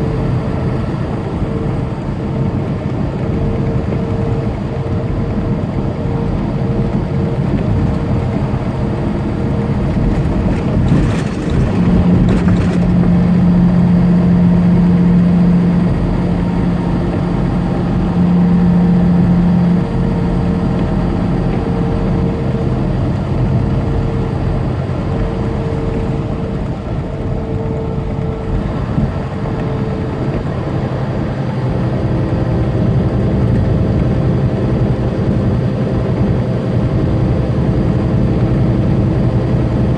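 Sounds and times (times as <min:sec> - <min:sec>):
diesel truck engine drone: 0:00.0 - 0:39.9
tyre noise on wet pavement: 0:09.7 - 0:13.3.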